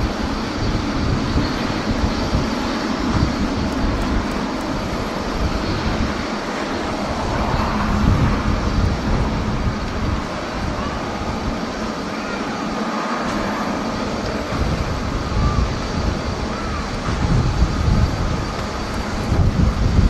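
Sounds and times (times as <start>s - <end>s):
jet engine rushing: 0.0s - 20.0s
wind buffeting microphone: 0.0s - 20.0s.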